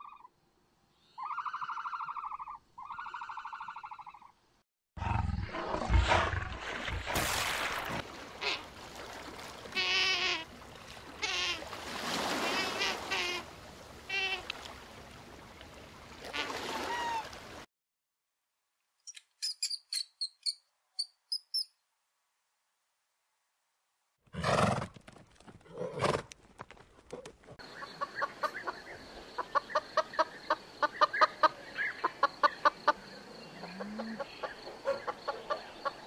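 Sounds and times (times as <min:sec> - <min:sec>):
rodent squeaks: 0:19.1 - 0:21.7.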